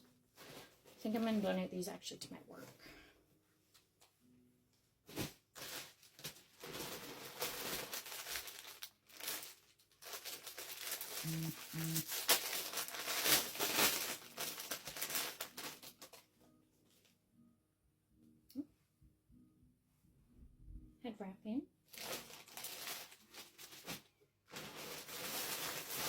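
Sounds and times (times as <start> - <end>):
plastic packaging crinkling: 5.1 - 16.3, 21.9 - 26.0.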